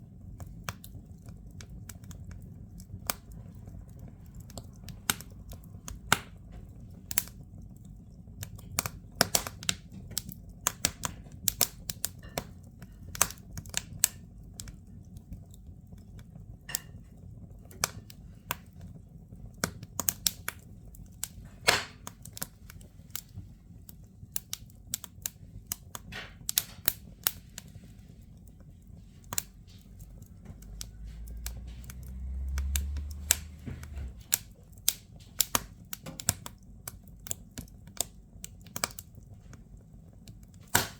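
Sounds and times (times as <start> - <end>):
firewood crackling and popping: 0.0 - 40.9
low rumble: 29.8 - 34.6.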